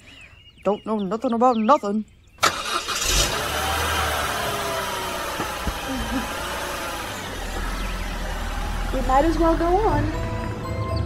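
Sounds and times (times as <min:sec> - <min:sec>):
car engine rumbling: 0:02.4 - 0:11.0.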